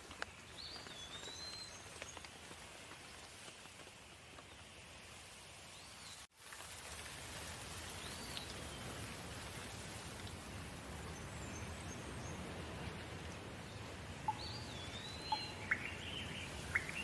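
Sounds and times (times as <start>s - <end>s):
steady rain falling: 0.0s - 17.0s
bird chirping: 14.3s - 17.0s.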